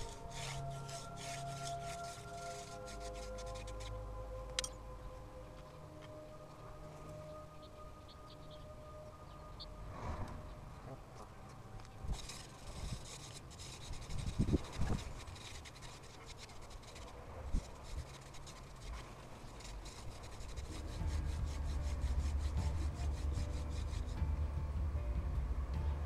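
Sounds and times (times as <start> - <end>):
wooden spindle rasping in notch: 0.0 - 4.0, 12.1 - 24.4
low rumble: 20.6 - 26.0.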